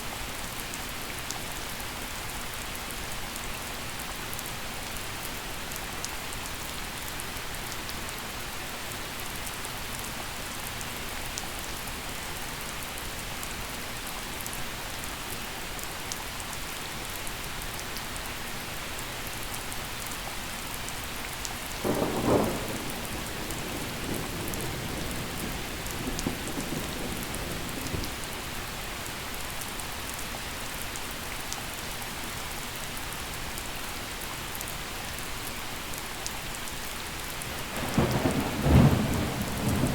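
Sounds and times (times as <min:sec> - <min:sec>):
gentle rain falling: 0:00.0 - 0:39.9
thunder crack and rumble: 0:21.8 - 0:28.5, 0:37.5 - 0:39.9.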